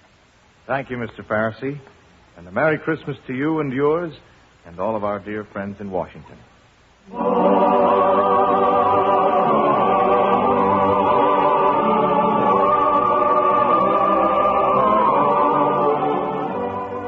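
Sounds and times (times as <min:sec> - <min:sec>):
choir singing sustained chords: 0:07.0 - 0:17.0.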